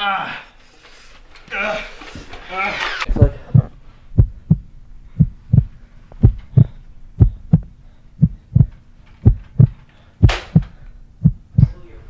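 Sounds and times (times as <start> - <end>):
heartbeat thumps: 3.1 - 11.8.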